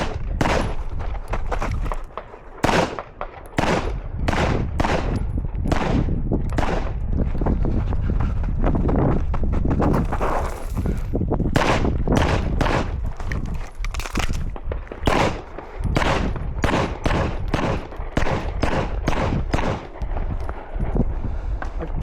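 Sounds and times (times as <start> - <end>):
sharp gunshots: 0.0 - 0.9, 2.2 - 7.0, 11.5 - 13.0, 14.6 - 20.3.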